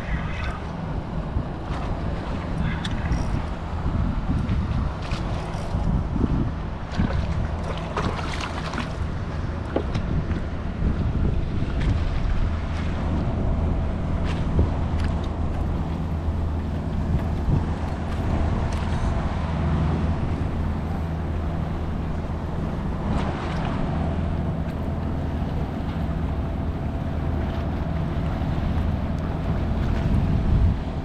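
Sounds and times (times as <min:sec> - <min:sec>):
wind rumble on microphone: 0:00.0 - 0:31.0.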